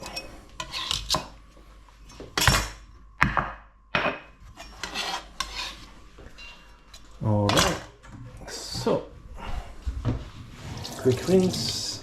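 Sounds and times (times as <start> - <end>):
utensils scraping chopping board: 0.0 - 1.3, 4.6 - 5.9.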